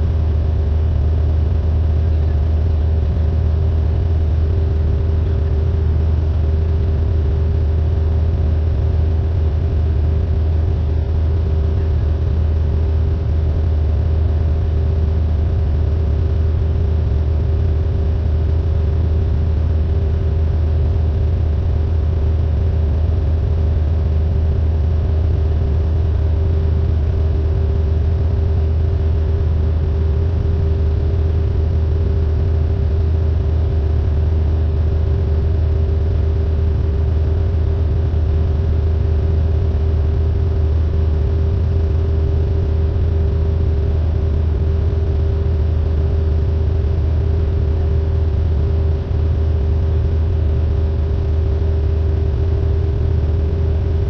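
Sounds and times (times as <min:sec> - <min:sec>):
airplane engine and propeller drone: 0:00.0 - 0:54.0.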